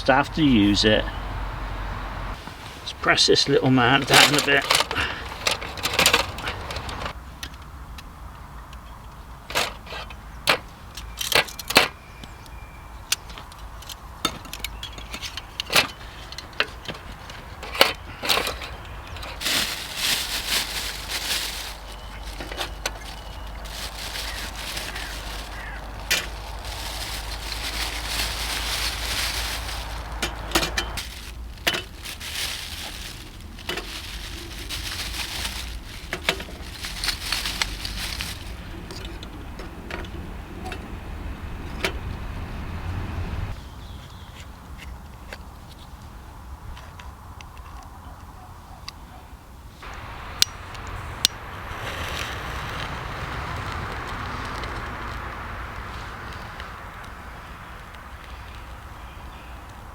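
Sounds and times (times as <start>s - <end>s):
metal camp gear clicking: 4.0s - 7.7s, 13.2s - 19.4s
steady hiss: 49.8s - 58.8s.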